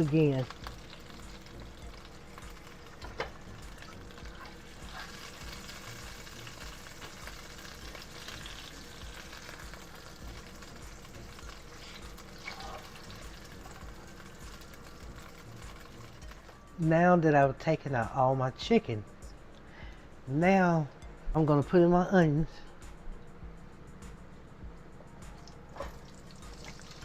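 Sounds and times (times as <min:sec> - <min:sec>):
chicken frying in grease: 0:00.0 - 0:16.6, 0:25.7 - 0:27.0.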